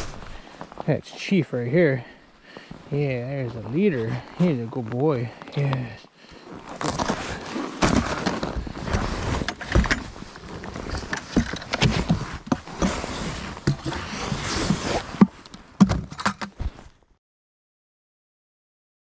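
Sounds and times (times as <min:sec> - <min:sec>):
footsteps with scuffs and knocks: 0:00.0 - 0:01.2.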